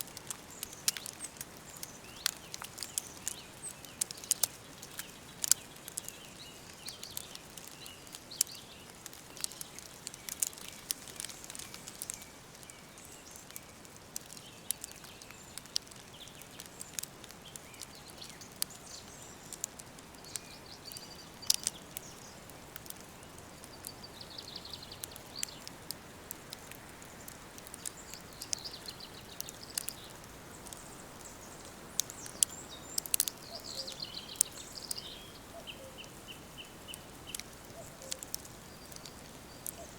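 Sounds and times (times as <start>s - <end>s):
sharp crackles and ticks: 0.0s - 39.9s
soft steady hiss: 0.0s - 39.9s
faint bird calls: 27.0s - 39.9s.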